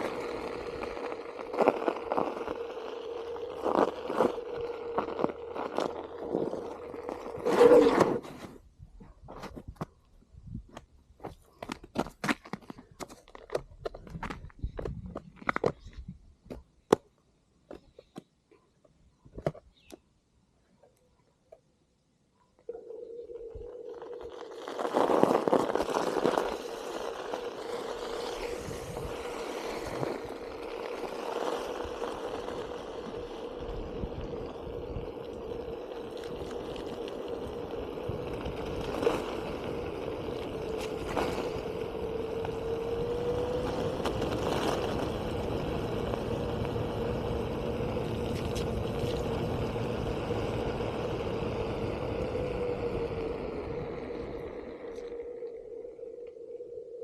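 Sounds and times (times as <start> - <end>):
tyre hiss on wet pavement: 0.0 - 8.2, 24.0 - 55.5
wind noise: 0.0 - 10.8, 13.6 - 16.6, 22.9 - 57.0
electric motor whining: 22.7 - 56.8.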